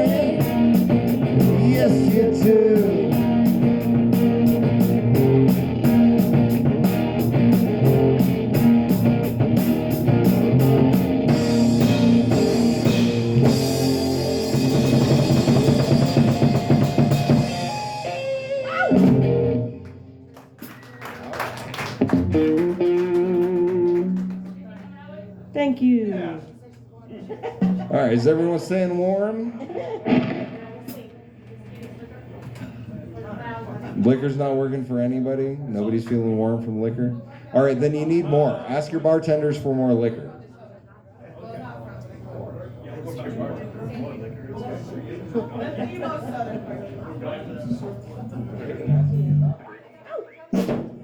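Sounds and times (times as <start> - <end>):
live rock band playing: 0.0 - 20.9, 21.8 - 24.6, 30.0 - 30.6, 48.9 - 49.5
audience clapping: 19.7 - 25.0.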